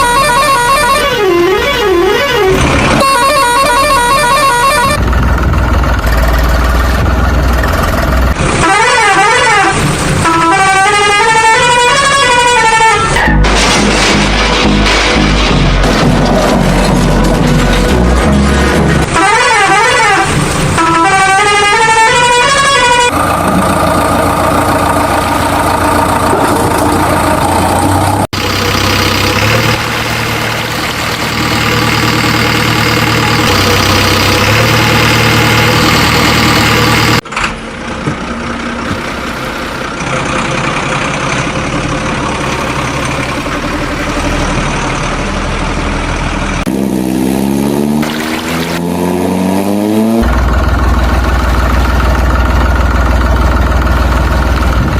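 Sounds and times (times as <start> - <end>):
melodic horn tones: 0.0 - 5.0, 17.3 - 23.2
heavy vehicle engine revving: 0.0 - 54.9.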